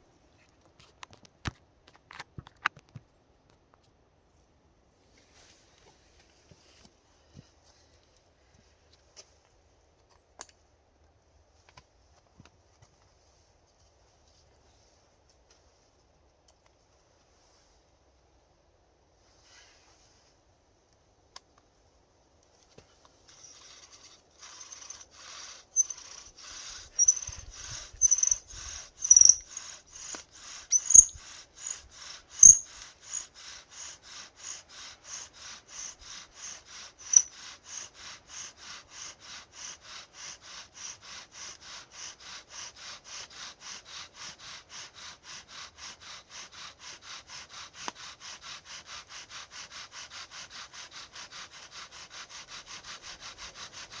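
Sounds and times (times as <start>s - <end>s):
wood squeaks: 23.3s - 33.3s, 35.1s - 37.3s
wood rubbing on wood: 23.3s - 54.0s.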